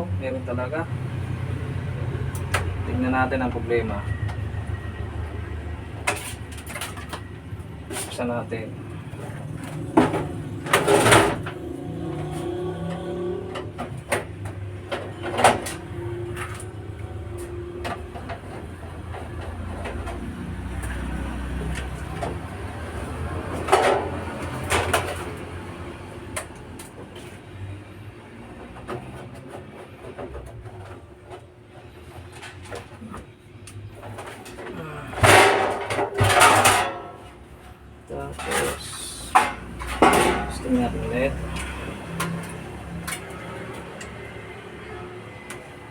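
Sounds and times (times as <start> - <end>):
knocks and clatter: 8.8 - 25.6, 28.4 - 37.4, 38.4 - 40.6.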